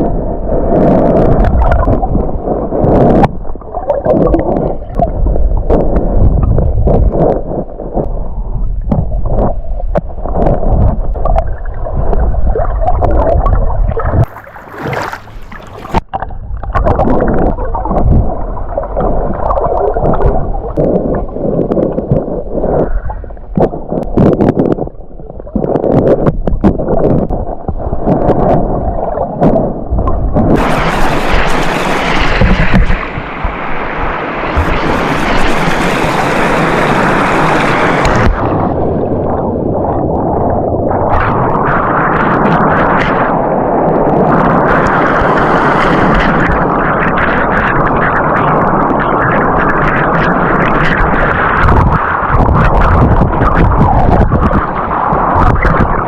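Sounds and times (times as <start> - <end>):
water sloshing and gurgling: 0.0 - 56.0
hissing rush of water: 30.6 - 38.8, 44.7 - 47.6.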